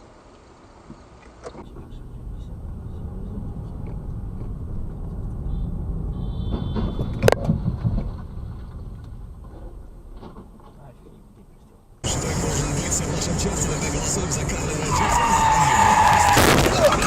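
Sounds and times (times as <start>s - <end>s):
car road and engine rumble: 0.0s - 17.0s
collision bang: 16.4s - 17.0s.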